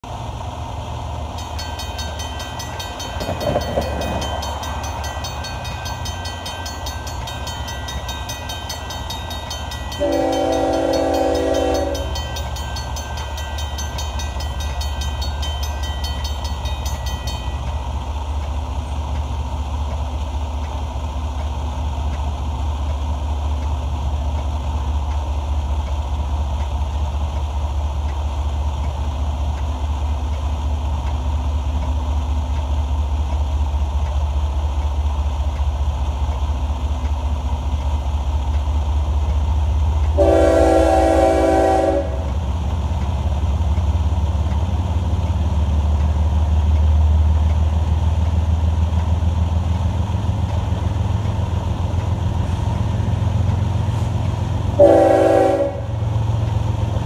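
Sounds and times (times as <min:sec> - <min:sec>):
diesel locomotive rumble: 0:00.0 - 0:57.0
crossing bell ringing: 0:01.3 - 0:19.0, 0:40.2 - 0:42.4
locomotive horn chord: 0:09.9 - 0:12.4, 0:40.2 - 0:42.4, 0:54.8 - 0:56.1.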